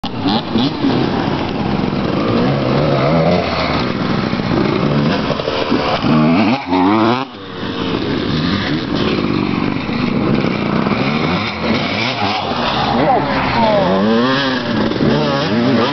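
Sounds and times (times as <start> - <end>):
motocross bike engines revving: 0.0 - 15.9.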